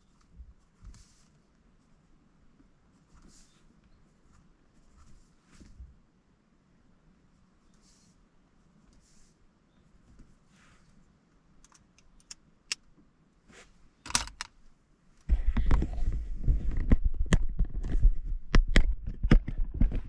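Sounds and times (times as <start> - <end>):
objects knocking and rustling: 14.1 - 14.5.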